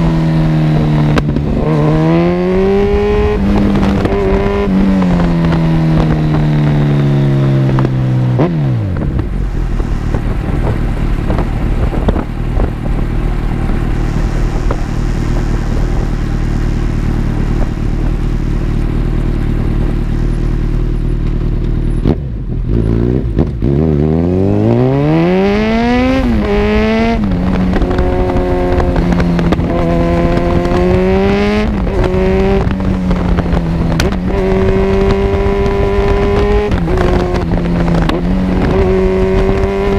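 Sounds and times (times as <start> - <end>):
motorcycle engine idling and accelerating: 0.0 - 39.9.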